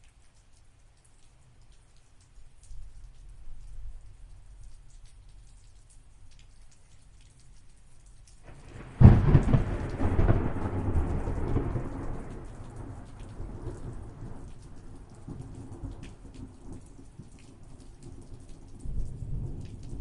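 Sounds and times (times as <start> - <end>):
raindrop clicks: 0.0 - 20.0
steady rain: 0.0 - 20.0
thunder rumbling: 8.5 - 16.8.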